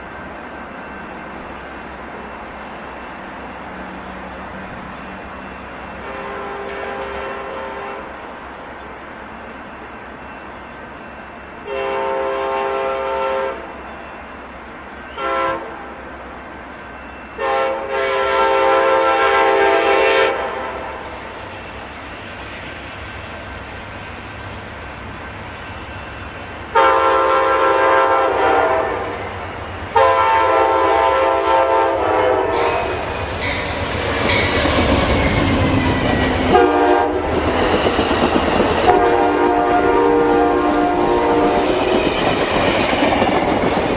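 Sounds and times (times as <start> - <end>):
train engine and wheel noise: 0.0 - 43.9
train air horn blasts: 6.0 - 8.2, 11.6 - 13.8, 15.1 - 16.0, 17.4 - 21.4, 26.7 - 33.5, 35.2 - 42.7.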